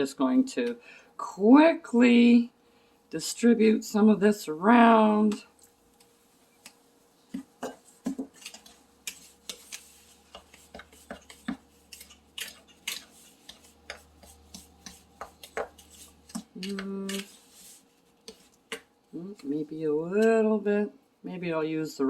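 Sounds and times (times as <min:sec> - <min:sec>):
fork scraping a mixing bowl: 0:06.6 - 0:18.8.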